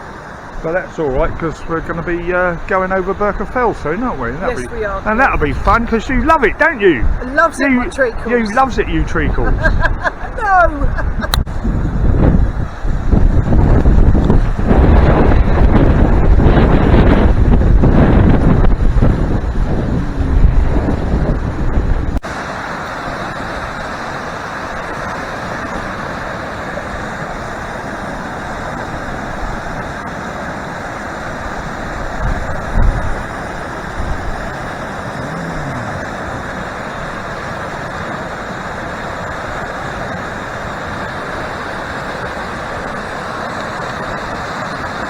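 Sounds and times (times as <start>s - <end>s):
river rushing: 0.0s - 9.0s, 11.9s - 45.0s
low bumps: 13.2s - 22.2s.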